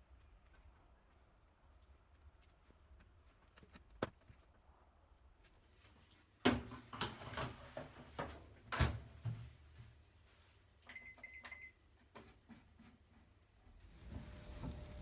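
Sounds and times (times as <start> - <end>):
kitchen knocks and clunks: 14.0 - 15.0.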